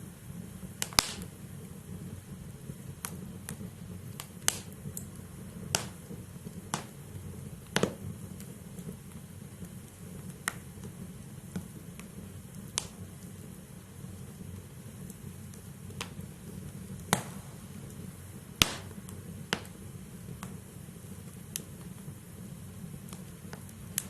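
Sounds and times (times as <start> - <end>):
fire crackling and popping: 0.0 - 24.0
low rumble of flames: 0.0 - 24.0.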